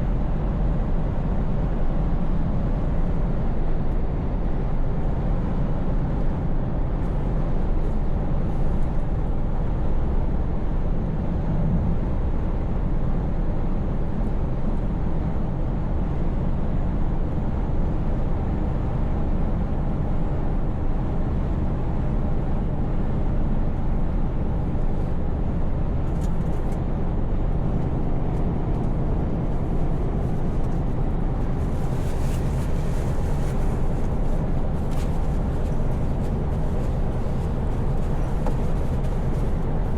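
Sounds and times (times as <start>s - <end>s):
tyre and road noise: 24.5s - 39.9s.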